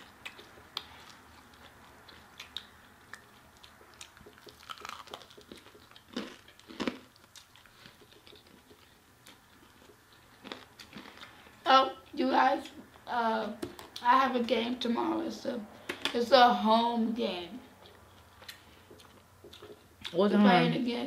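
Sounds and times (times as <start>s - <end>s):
chewing chicken wings: 0.0s - 12.8s, 17.7s - 20.3s
wet mouth clicks and smacks: 18.4s - 20.2s.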